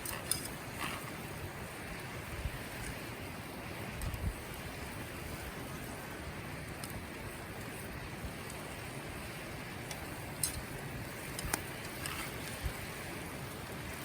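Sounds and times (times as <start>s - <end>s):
campfire crackles: 0.0s - 14.0s
steady cooking hiss: 0.0s - 14.0s.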